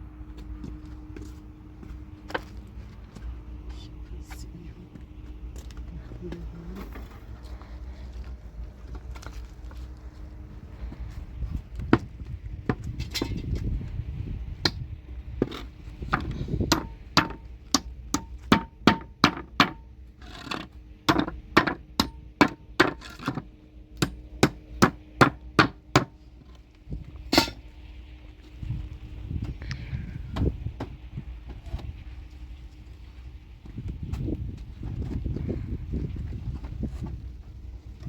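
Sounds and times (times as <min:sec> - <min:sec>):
low rumble: 0:26.2 - 0:38.0.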